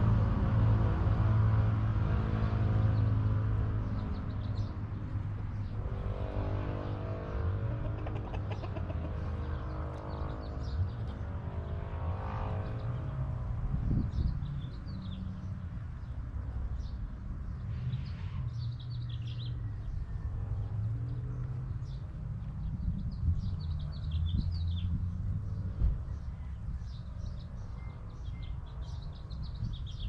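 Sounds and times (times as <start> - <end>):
small birds chirping: 2.7 - 6.0, 6.7 - 13.2, 13.8 - 30.0
chickens calling: 7.3 - 10.0.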